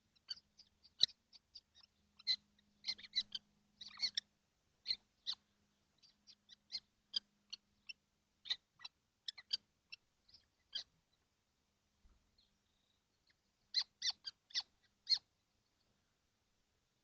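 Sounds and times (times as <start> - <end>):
kestrels giving sharp calls: 0.0 - 11.0, 13.3 - 15.3
faint low hum: 0.0 - 17.0.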